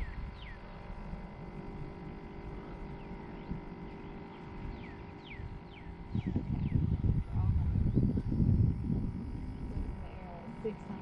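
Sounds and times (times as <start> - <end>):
bird whistling calls: 0.0 - 0.7
steady low rumble: 0.0 - 11.0.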